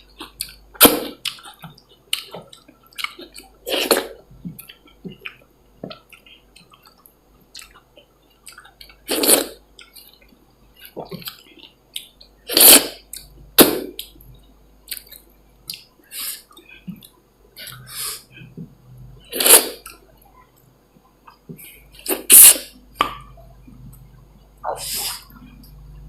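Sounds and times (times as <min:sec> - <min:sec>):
wet chewing: 0:00.1 - 0:18.7.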